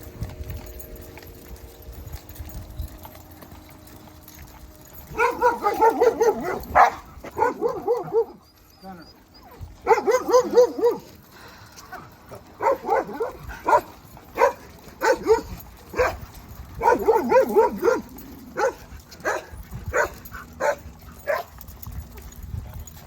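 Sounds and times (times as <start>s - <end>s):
dog barking excitedly: 5.2s - 8.4s, 9.8s - 11.1s, 12.6s - 16.2s, 16.8s - 21.5s.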